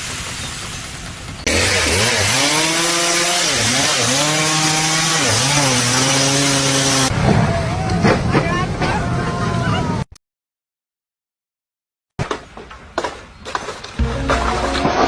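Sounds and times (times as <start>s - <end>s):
small engine running: 0.8s - 7.1s.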